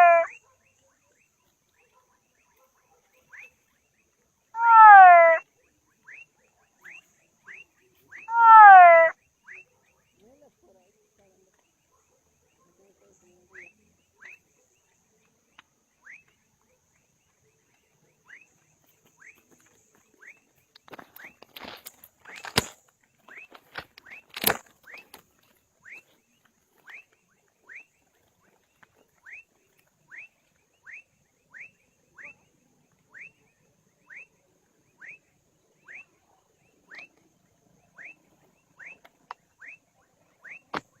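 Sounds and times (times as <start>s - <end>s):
frog calling: 0.0s - 0.6s, 4.5s - 10.2s, 30.1s - 41.0s.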